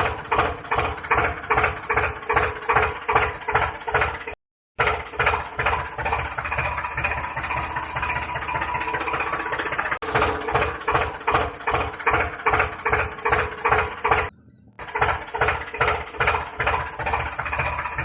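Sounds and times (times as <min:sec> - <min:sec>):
engine chugging: 0:00.0 - 0:18.0.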